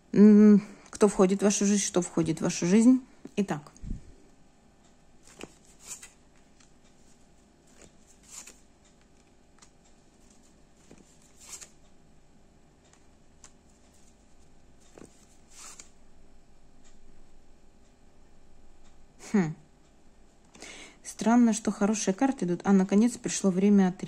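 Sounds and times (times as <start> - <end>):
cards being shuffled: 5.2 - 11.8, 13.4 - 16.0.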